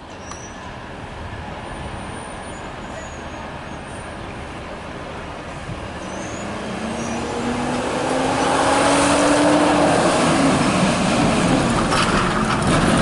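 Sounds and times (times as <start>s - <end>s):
vehicle engine speeding up: 6.3s - 13.0s.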